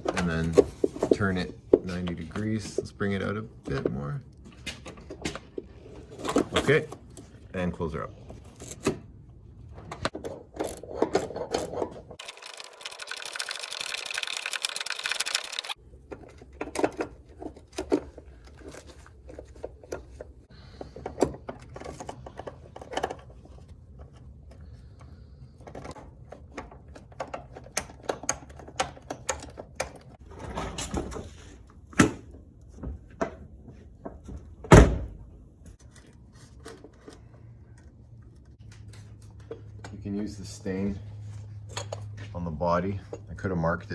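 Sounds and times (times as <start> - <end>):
hand tools clicking and clinking: 12.2 - 15.8.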